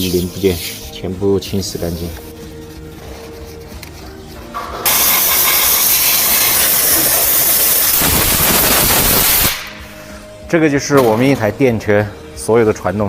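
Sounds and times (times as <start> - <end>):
pressure washer jet hissing: 4.9 - 9.7.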